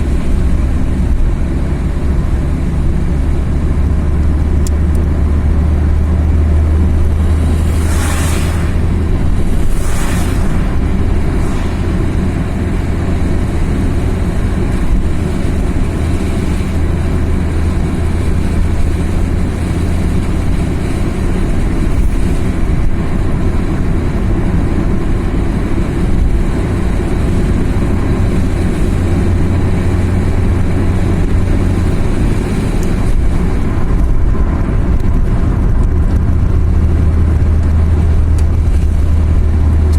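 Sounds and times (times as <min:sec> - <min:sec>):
car engine and tyres rumbling: 0:00.0 - 0:39.9
rushing hiss: 0:06.8 - 0:14.4.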